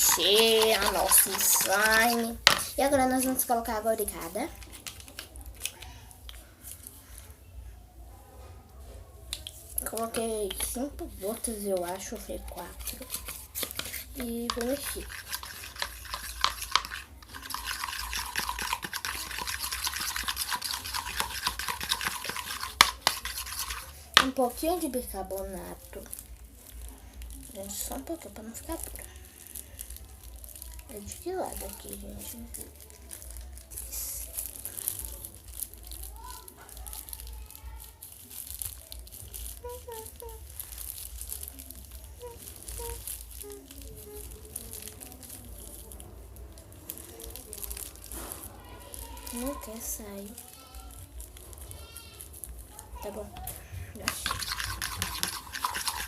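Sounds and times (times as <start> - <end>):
slime squelching while stirred: 0.0 - 7.5, 9.2 - 56.0
plastic container crinkling and clicking: 4.6 - 6.4.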